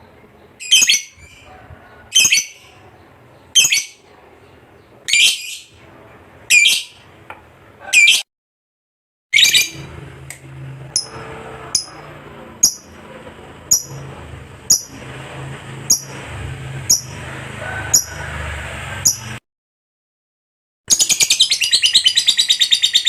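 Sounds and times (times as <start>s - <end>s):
bird chattering and chirping: 0.4s - 5.7s, 6.5s - 7.0s, 7.9s - 8.2s, 12.6s - 13.0s, 13.7s - 14.0s, 14.7s - 15.0s, 16.9s - 17.2s, 19.0s - 19.3s, 20.9s - 23.0s.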